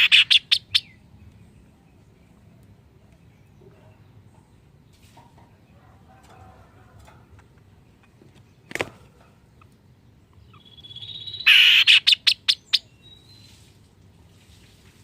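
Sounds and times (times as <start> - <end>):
harsh bird call burst: 0.0 - 0.9, 10.6 - 12.8
songbird calling sharp notes: 0.0 - 2.4, 9.6 - 13.6.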